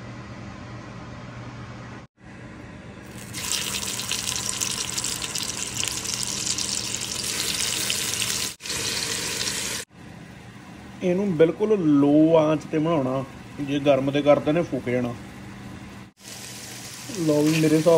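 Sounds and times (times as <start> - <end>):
chicken sizzling in hot oil: 3.1 - 9.9, 16.2 - 17.9.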